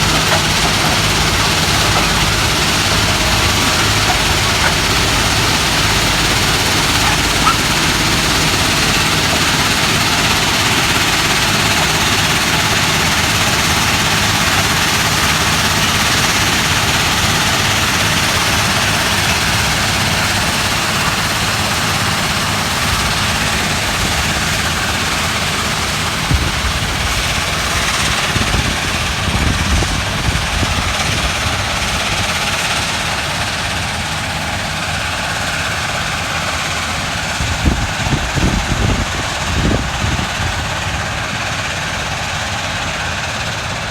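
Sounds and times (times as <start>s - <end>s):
small knocks: 0.0s - 9.6s
heavy machinery roaring: 0.0s - 43.9s
low engine hum: 0.0s - 43.9s.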